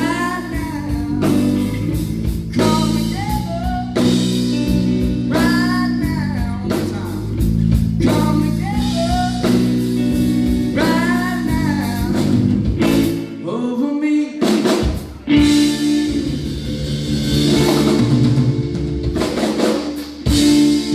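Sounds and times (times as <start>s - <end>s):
man singing lead vocal: 0.0s - 4.6s, 5.2s - 16.4s
country-rock band playing: 0.0s - 20.9s.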